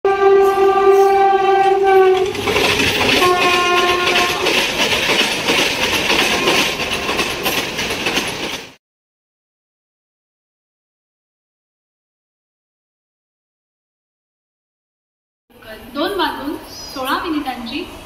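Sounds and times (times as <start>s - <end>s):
train horn blasts: 0.0s - 2.5s, 3.1s - 4.6s
train rushing and rattling: 0.1s - 8.8s.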